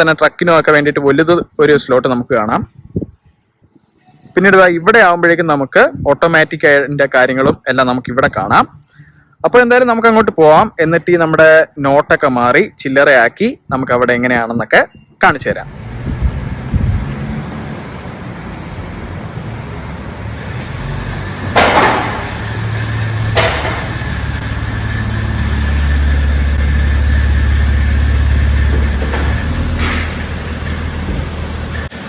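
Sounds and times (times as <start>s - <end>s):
car engine rumbling: 15.5s - 32.0s
sharp noisy bursts: 15.7s - 32.0s.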